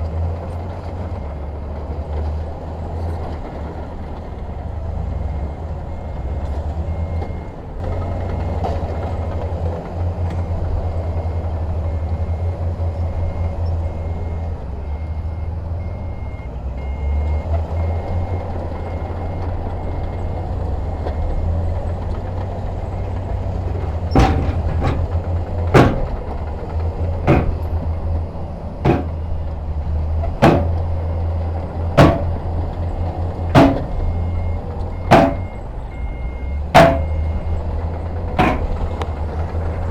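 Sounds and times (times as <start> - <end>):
diesel machinery engine rumble: 0.0 - 39.9
sharp metallic bangs: 23.6 - 26.4, 27.0 - 28.0, 28.8 - 29.5, 30.2 - 31.1, 31.9 - 32.6, 33.4 - 34.4, 35.0 - 35.6, 36.8 - 37.4, 38.4 - 38.9.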